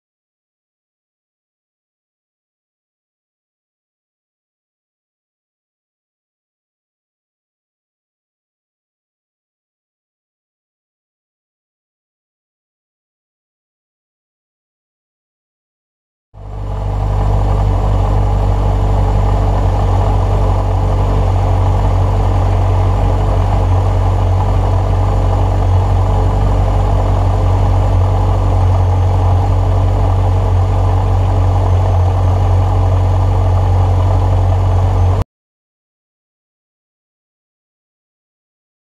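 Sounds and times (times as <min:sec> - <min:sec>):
car engine idling: 0:16.4 - 0:35.2.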